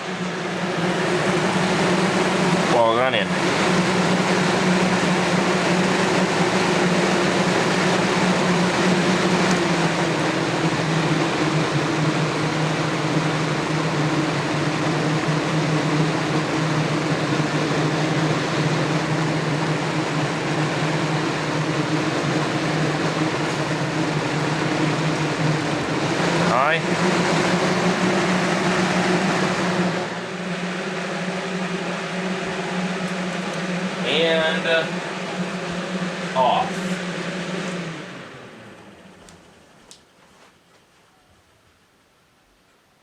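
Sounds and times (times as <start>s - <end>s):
rush of air from fan: 0.0s - 39.7s
fan motor hum: 0.0s - 43.0s.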